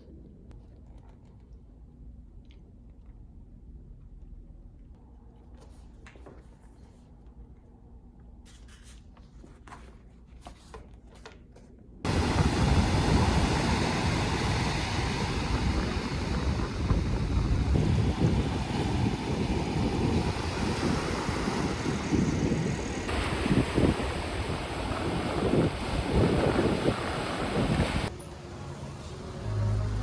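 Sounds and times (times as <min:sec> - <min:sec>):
ocean surf: 0:12.1 - 0:28.1
wind buffeting microphone: 0:12.1 - 0:28.1.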